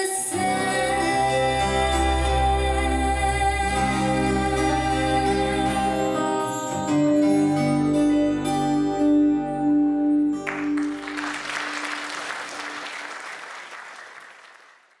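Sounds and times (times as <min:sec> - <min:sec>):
audience applause: 0:10.4 - 0:15.0.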